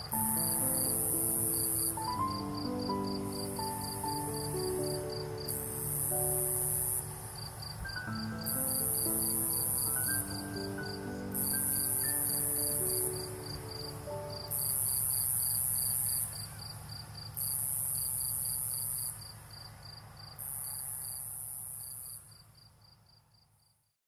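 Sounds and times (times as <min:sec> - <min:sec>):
soft music notes: 0:00.0 - 0:15.4
cricket chirping: 0:00.0 - 0:23.9.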